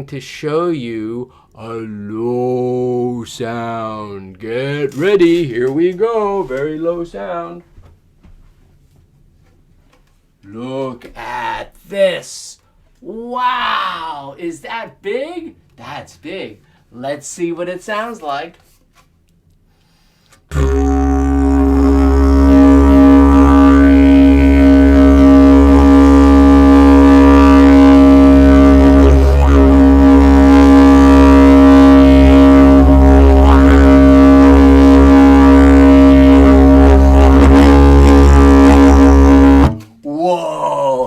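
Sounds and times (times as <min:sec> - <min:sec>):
low musical drone: 0:20.5 - 0:39.8.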